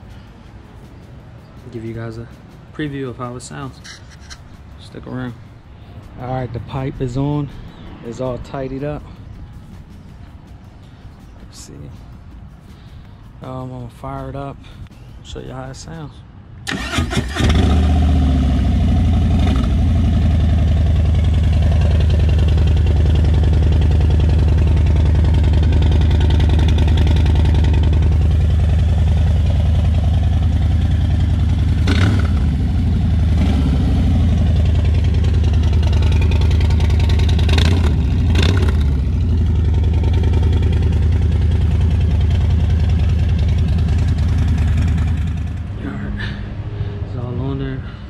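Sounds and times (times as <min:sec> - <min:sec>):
motorcycle engine idling: 0:17.9 - 0:45.8.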